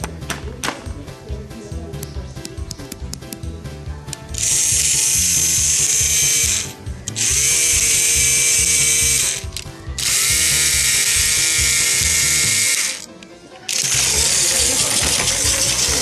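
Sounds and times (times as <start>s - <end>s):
background music with steady beat: 0.0s - 16.0s
toy train motor whirring: 4.4s - 16.0s.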